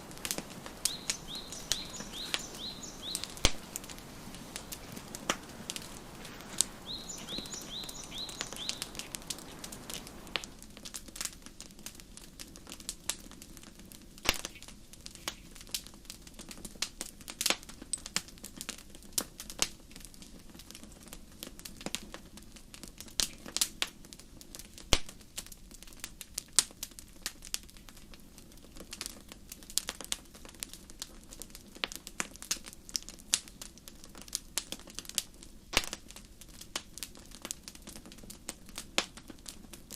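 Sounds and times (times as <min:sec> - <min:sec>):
wood fire crackling: 0:00.0 - 0:39.9
bird chirping: 0:00.5 - 0:10.4.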